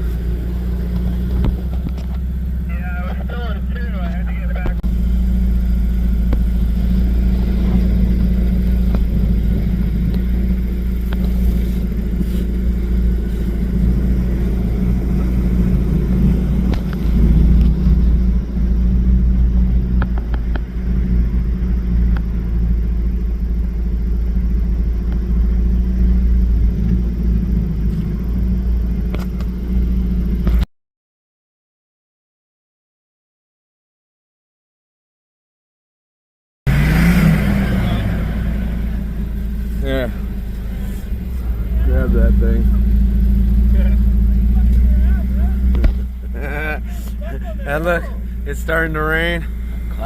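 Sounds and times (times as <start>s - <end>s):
off-road vehicle engine rumbling: 0.0s - 30.7s, 36.7s - 50.0s.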